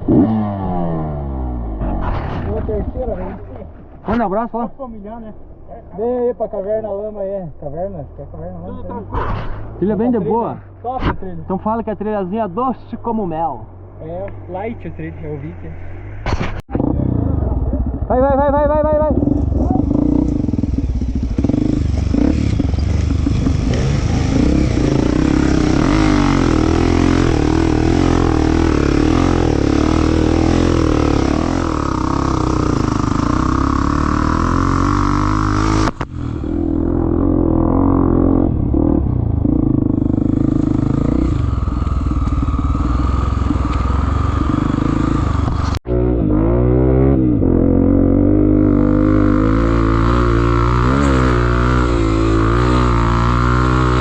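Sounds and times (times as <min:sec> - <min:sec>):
motorcycle engine revving: 0:00.0 - 0:03.9, 0:16.4 - 0:54.0.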